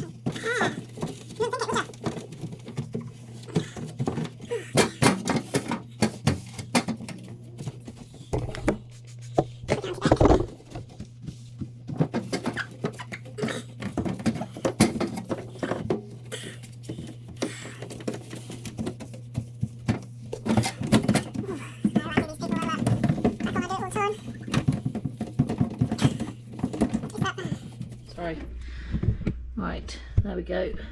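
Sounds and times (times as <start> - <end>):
scrubbing plastic drawer: 0.0 - 28.3
steady low hum: 13.3 - 30.9.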